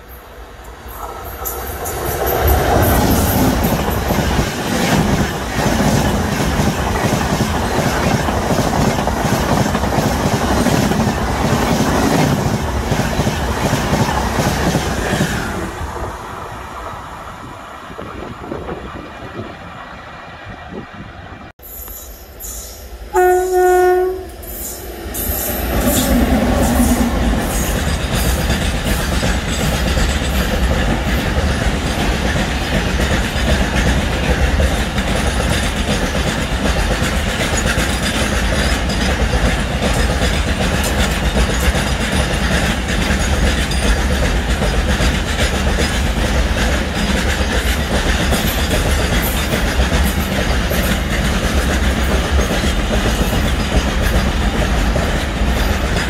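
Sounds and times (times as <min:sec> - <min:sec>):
freight train passing: 0:00.0 - 0:56.0
wheels clacking over rail joints: 0:25.3 - 0:56.0.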